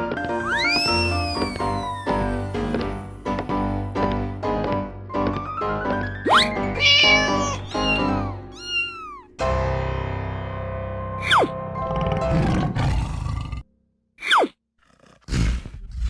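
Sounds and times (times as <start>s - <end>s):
rising whistle-like swoop: 0.4s - 2.6s
cartoon music: 0.4s - 2.8s, 6.8s - 9.3s
swooping falling calls: 6.8s - 9.2s.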